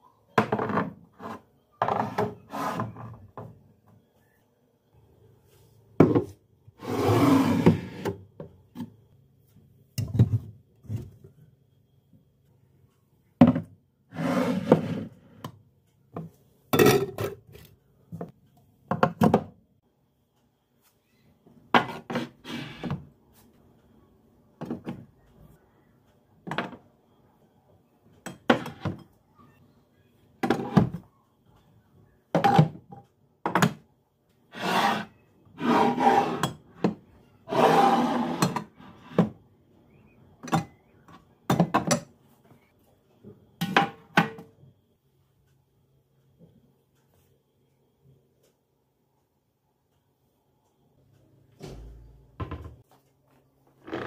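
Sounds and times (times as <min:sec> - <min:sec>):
dishes knocking and clattering: 0:41.5 - 0:42.1, 0:52.4 - 0:52.8.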